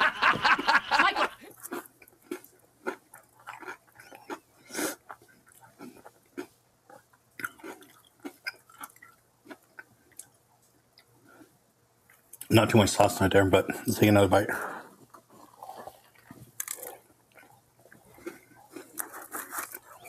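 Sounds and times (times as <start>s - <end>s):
man chewing with wet mouth sounds: 1.4s - 12.5s, 14.8s - 20.0s.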